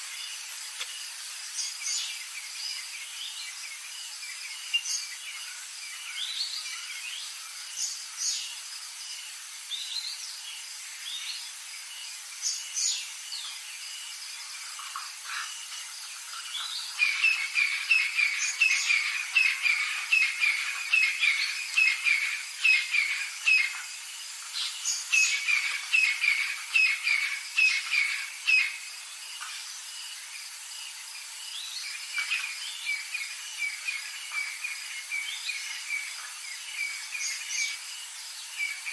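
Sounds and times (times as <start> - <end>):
faint steady hiss: 0.0 - 38.9
birds chirping and squawking: 14.7 - 23.8, 24.6 - 28.8.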